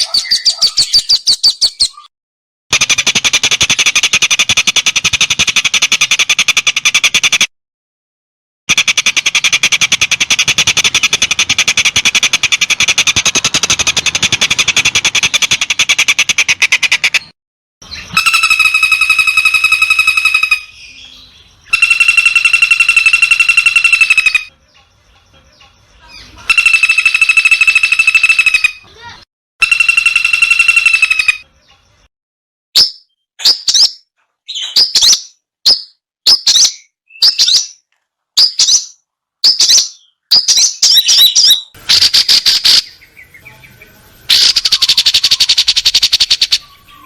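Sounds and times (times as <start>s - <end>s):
fast buzzing bird trills: 8.7s - 17.2s, 18.0s - 20.8s, 21.7s - 24.5s, 26.5s - 31.4s
clear ringing bird trills: 17.9s - 31.9s.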